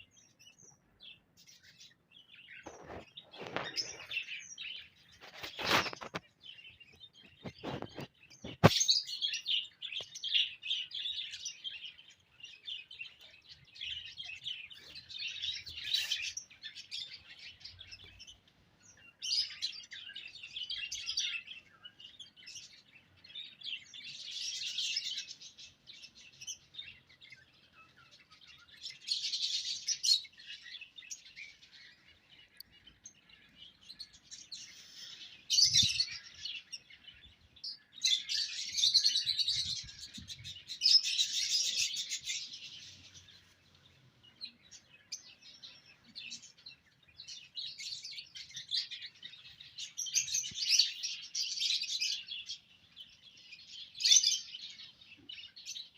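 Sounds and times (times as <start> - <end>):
small cage birds chirping: 0.0 - 55.9.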